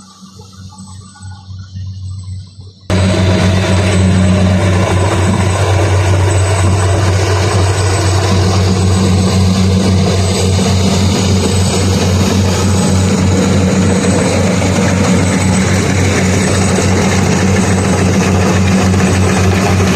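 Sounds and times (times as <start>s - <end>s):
combine harvester droning: 2.9s - 19.9s.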